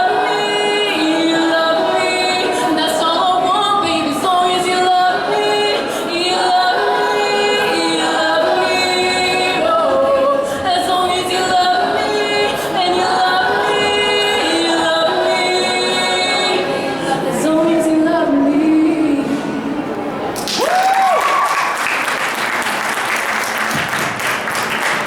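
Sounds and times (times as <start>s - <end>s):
women singing long notes: 0.0s - 20.0s.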